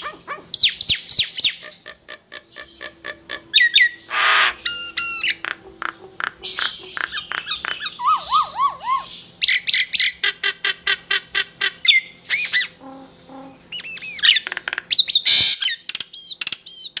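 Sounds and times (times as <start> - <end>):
songbird chirps and trills: 0.0 - 17.0.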